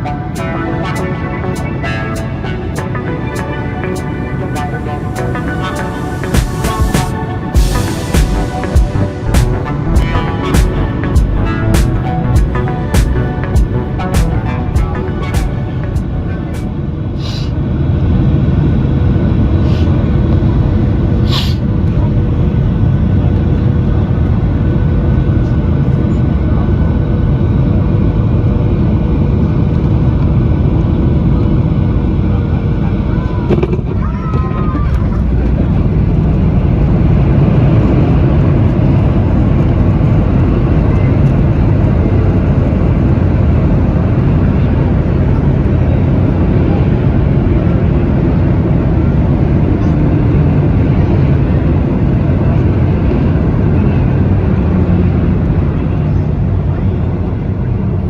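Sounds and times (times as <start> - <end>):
aircraft cabin engine rumble: 0.0 - 58.0
short hisses: 17.2 - 17.5, 19.7 - 19.9, 21.2 - 21.6.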